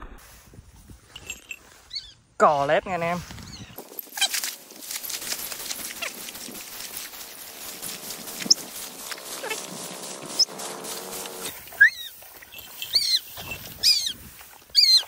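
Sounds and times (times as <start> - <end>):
rustling through rice stalks: 3.2 - 15.0
bird giving harsh calls: 11.7 - 14.2
short squeaks: 11.7 - 14.2.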